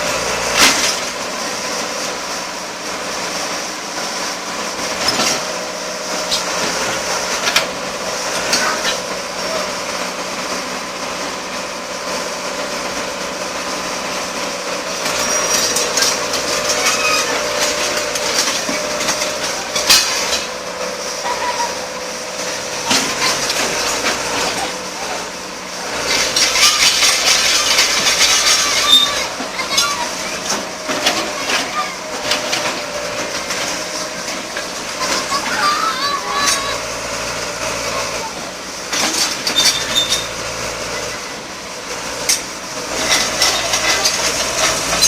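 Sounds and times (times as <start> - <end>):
backhoe engine drone: 0.0 - 45.0
metal clanking on concrete: 15.1 - 20.6, 38.9 - 40.5, 42.2 - 45.0.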